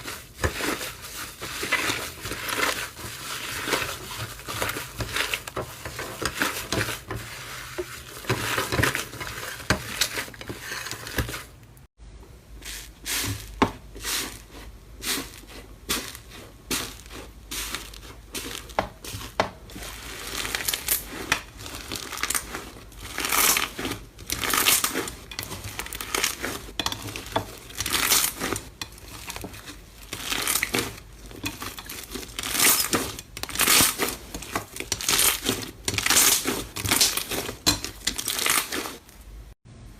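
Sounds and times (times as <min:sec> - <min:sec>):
slime crackling and popping: 0:17.8 - 0:39.1.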